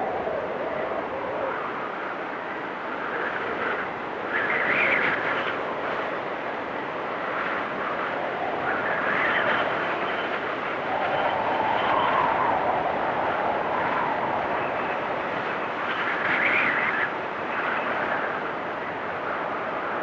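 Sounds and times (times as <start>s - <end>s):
gusting blizzard wind: 0.0s - 20.0s.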